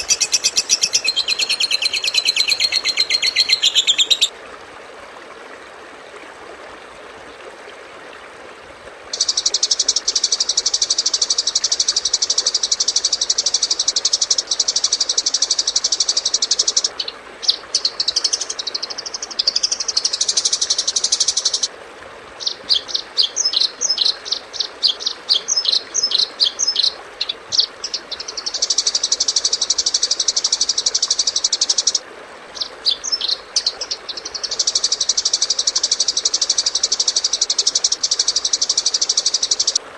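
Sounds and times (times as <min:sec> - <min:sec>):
bird warbling and chattering: 0:00.0 - 0:04.3, 0:09.2 - 0:21.7
songbird buzzing trill: 0:00.0 - 0:04.3.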